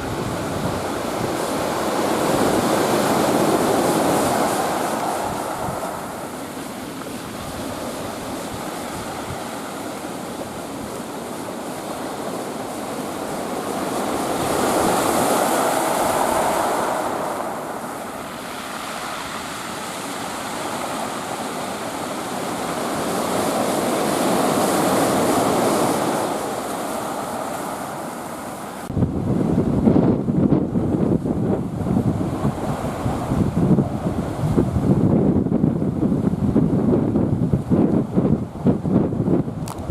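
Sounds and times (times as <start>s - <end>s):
wind buffeting microphone: 0.0s - 27.7s, 28.8s - 39.9s
steady wind: 0.0s - 39.9s
surf breaking: 13.3s - 21.8s.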